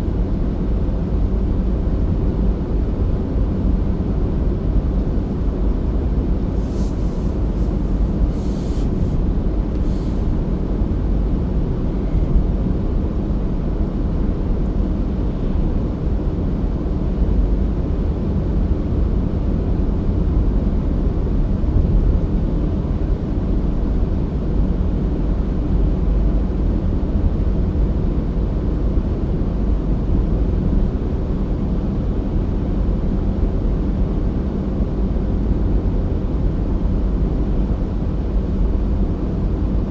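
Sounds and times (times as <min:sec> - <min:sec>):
car driving rumble: 0:03.3 - 0:16.4
hissy crackles: 0:05.0 - 0:11.4.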